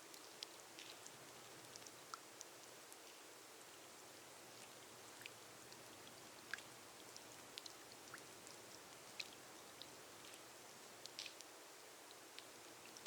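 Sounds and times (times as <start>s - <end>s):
rain falling on a glass roof: 0.0s - 13.0s
single raindrops ticking: 0.1s - 3.2s, 4.5s - 13.0s.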